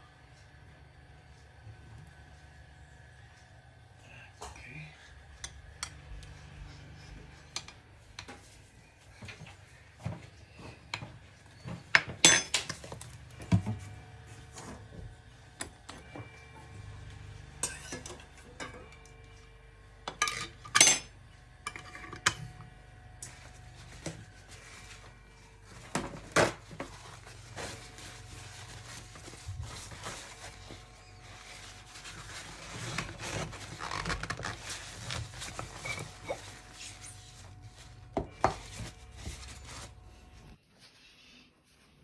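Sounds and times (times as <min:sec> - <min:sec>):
dishes and cutlery clattering: 0:12.0 - 0:12.9.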